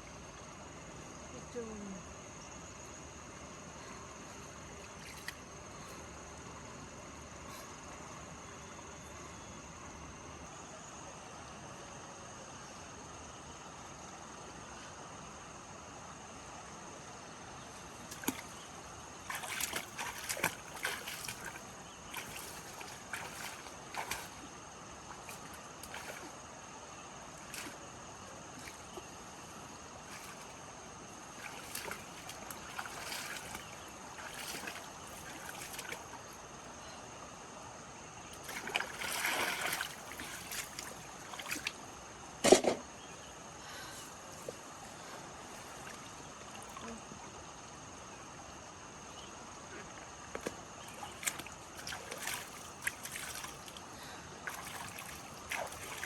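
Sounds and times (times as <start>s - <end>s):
faint high-pitched whine: 0.0s - 56.0s
water splashing and sloshing: 4.3s - 6.0s, 17.6s - 36.8s, 38.0s - 43.2s, 44.1s - 47.6s, 49.8s - 56.0s.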